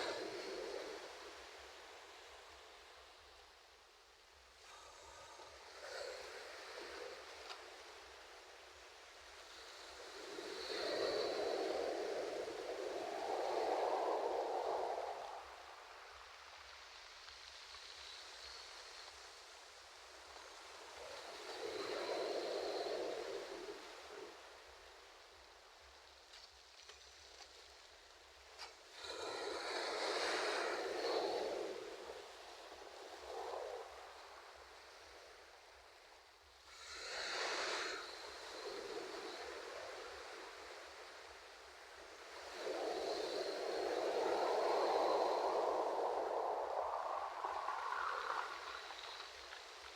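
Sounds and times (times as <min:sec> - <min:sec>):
ocean waves washing onto shore: 0:00.0 - 0:03.4, 0:04.4 - 0:25.1, 0:28.8 - 0:49.9
ocean waves breaking on shore: 0:28.8 - 0:35.6.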